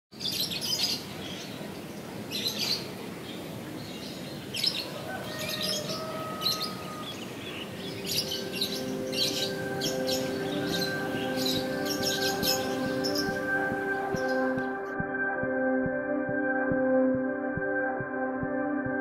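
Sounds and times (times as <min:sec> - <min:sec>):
small birds chirping: 0:00.1 - 0:14.9.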